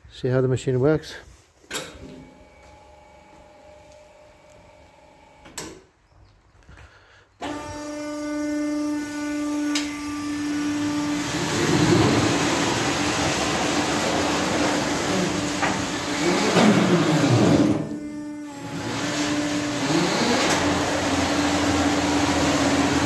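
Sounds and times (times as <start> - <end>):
whirring mechanical noise: 7.4 - 23.0
steady motor hum: 7.5 - 23.0.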